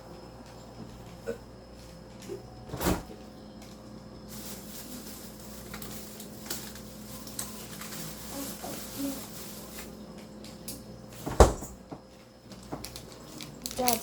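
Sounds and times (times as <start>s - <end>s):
steady low hum: 0.0s - 13.8s
door thumping shut: 2.7s - 3.2s, 11.2s - 11.8s.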